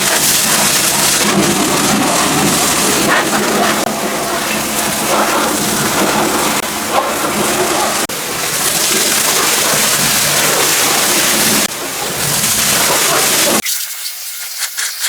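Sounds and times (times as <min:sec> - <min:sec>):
water splashing: 0:00.0 - 0:14.0
pressure washer spraying water: 0:00.0 - 0:15.0.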